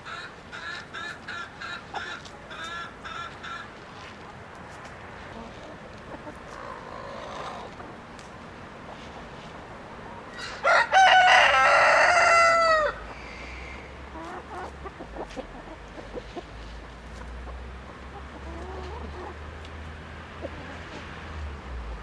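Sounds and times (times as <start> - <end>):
faint hen clucking: 5.3 - 8.0, 10.3 - 21.4
rooster crowing: 10.4 - 13.0.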